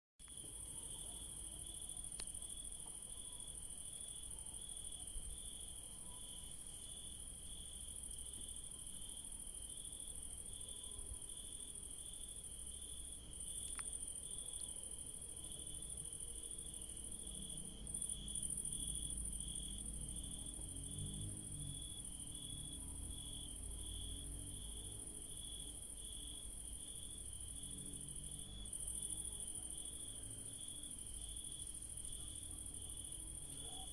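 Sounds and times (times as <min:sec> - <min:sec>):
crickets chirping: 0:00.3 - 0:33.9
high-pitched insect trill: 0:15.6 - 0:33.9.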